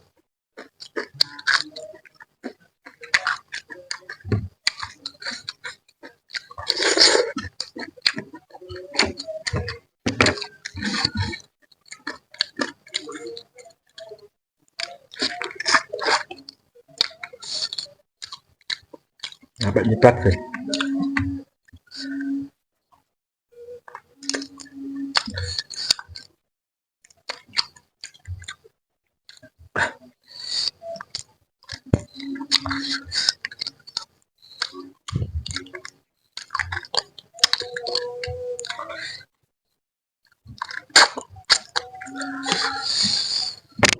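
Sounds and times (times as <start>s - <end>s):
chewing and lip-smacking: 0.6s - 21.2s, 27.1s - 28.7s, 29.3s - 39.2s, 40.3s - 43.9s
wet mouth clicks: 0.6s - 22.5s, 23.7s - 26.3s, 29.3s - 39.3s, 40.3s - 43.9s
person humming: 19.6s - 21.4s, 24.2s - 25.5s, 31.9s - 33.1s, 41.9s - 42.9s
lip smacks: 40.6s - 43.9s
sucking: 41.5s - 43.9s.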